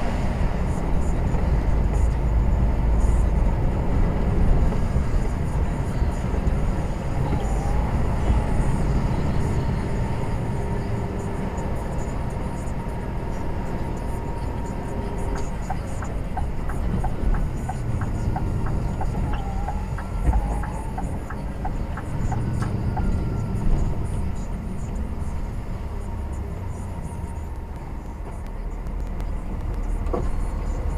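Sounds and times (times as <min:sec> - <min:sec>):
engine and road rumble: 0:00.0 - 0:30.9
light ticking: 0:15.3 - 0:23.6.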